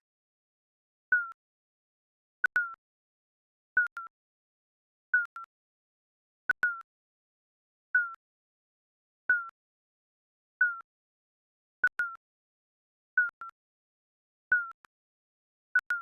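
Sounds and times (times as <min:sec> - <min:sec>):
timer beeps: 0:03.8 - 0:04.1, 0:05.2 - 0:05.5, 0:13.2 - 0:13.6.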